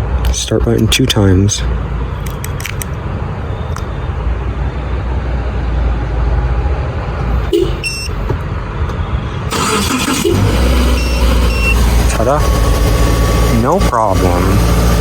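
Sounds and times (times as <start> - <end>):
short tone: 7.5 - 8.2, 9.8 - 15.0.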